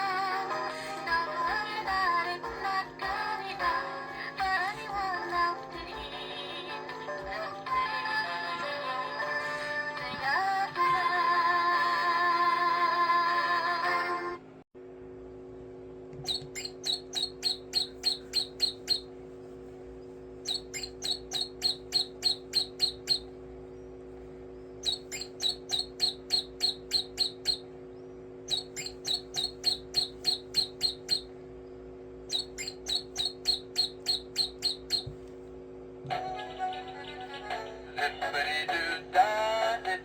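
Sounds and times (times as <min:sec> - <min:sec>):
steady low hum: 0:00.0 - 0:40.0
bird chirping: 0:16.2 - 0:19.1, 0:20.4 - 0:35.2.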